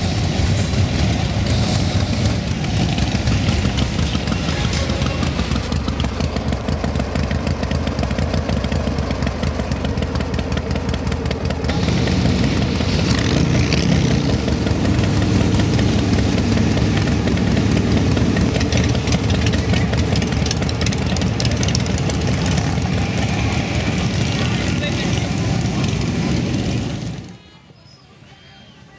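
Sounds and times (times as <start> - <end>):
motorcycle engine running: 0.0 - 27.4.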